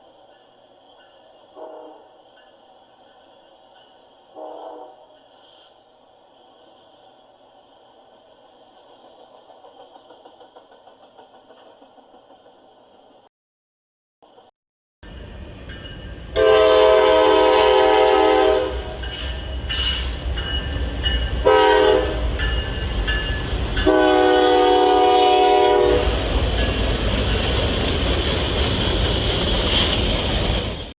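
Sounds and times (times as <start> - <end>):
wheel-on-rail hiss: 0.0 - 13.1
passing train rumbling: 0.0 - 13.3, 14.2 - 31.0
train horn blasts: 1.5 - 2.2, 4.3 - 5.6, 16.3 - 20.1, 21.4 - 22.3, 23.8 - 26.2.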